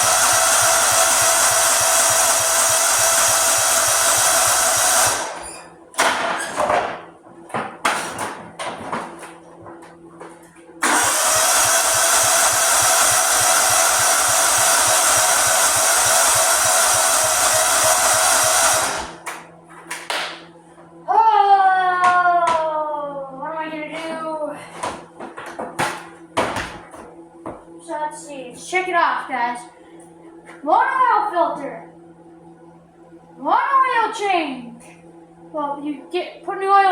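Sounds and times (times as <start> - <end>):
electric starter cranking engine: 0.0 - 5.6, 10.8 - 19.3.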